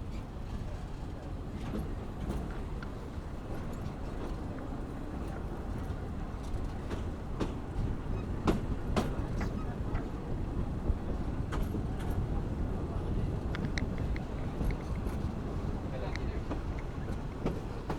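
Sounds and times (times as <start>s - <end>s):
train low rumble: 0.0s - 17.9s
train wheels clacking: 5.8s - 10.2s, 13.4s - 17.9s.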